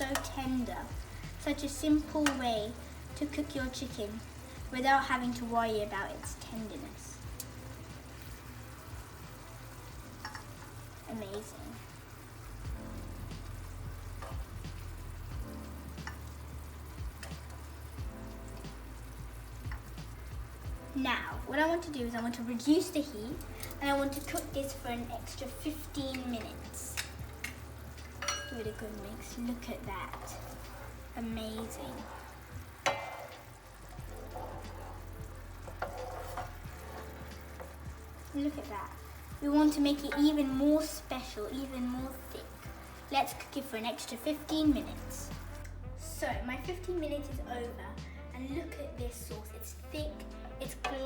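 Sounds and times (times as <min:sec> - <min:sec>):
sauce bubbling and sizzling in pan: 0:00.0 - 0:51.0
utensil clicking against pan: 0:02.1 - 0:02.4, 0:10.1 - 0:10.8, 0:16.0 - 0:16.4, 0:17.0 - 0:17.7, 0:19.6 - 0:20.2, 0:23.3 - 0:24.8, 0:26.0 - 0:28.7, 0:34.2 - 0:38.2.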